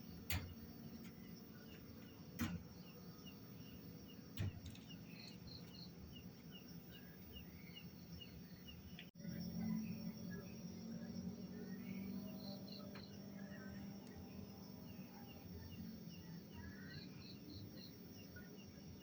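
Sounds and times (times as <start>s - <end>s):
sharp clicks: 0.0s - 3.0s, 4.3s - 5.9s
insect chirping: 0.0s - 19.0s.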